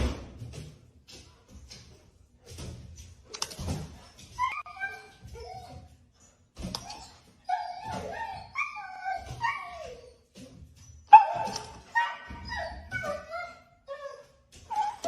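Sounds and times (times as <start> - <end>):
dog whining: 6.8 - 10.3, 11.0 - 15.0.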